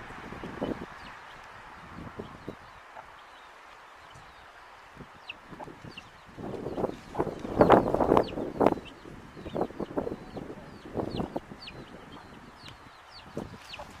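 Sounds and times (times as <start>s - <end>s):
chicks peeping: 0.0s - 14.0s
chicken clucks: 5.2s - 14.0s.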